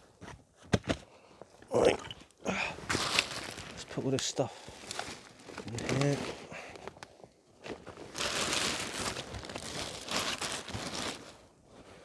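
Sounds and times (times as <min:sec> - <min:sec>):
packaging crinkling and rustling: 0:02.9 - 0:11.5.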